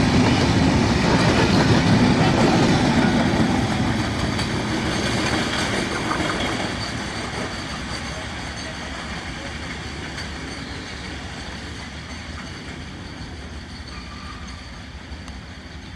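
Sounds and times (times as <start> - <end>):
train wheels on track: 0.0 - 15.9.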